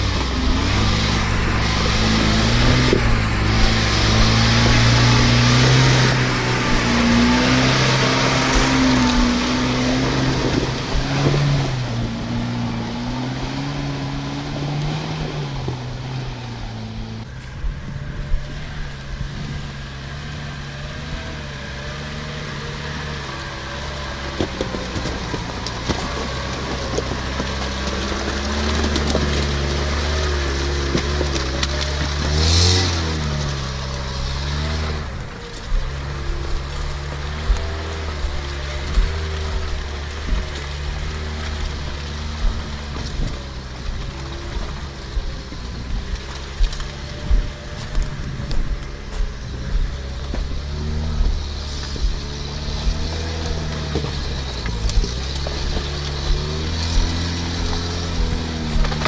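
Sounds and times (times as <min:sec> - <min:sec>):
off-road engine under load: 0:00.0 - 0:59.0
knocks and clunks: 0:23.8 - 0:59.0.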